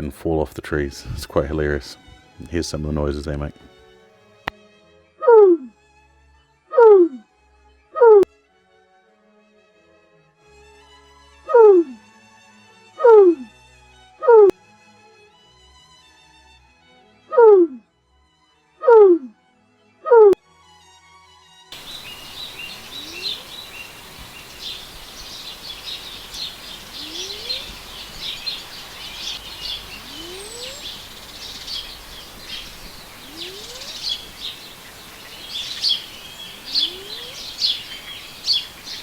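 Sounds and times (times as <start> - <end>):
small birds chirping: 1.0 - 3.9, 21.8 - 39.0
faint low rising call: 21.8 - 39.0.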